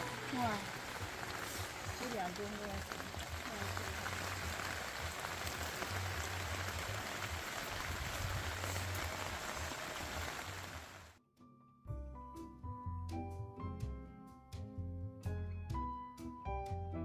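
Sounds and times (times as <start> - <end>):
steady rain falling: 0.0 - 11.2.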